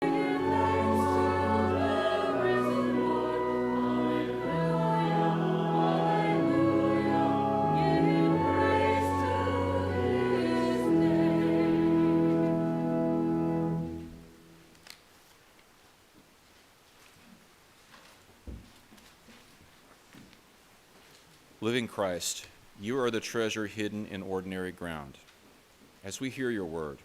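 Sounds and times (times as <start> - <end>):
church choir singing: 0.0 - 14.2
low instrumental accompaniment: 0.0 - 14.6.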